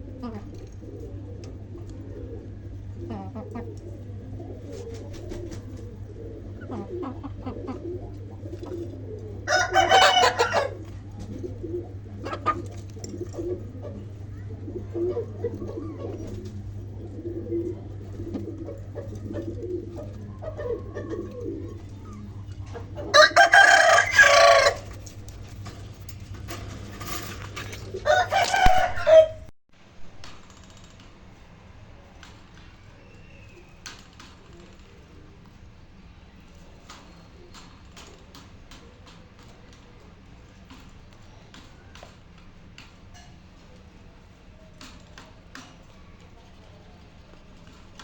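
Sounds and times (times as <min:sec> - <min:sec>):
low hum: 0:00.0 - 0:30.6.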